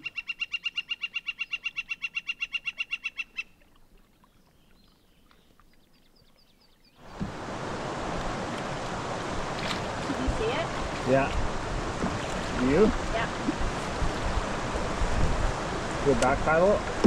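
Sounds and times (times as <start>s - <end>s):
bird calling high repeated notes: 0.0s - 3.6s
river current rushing: 7.0s - 17.0s.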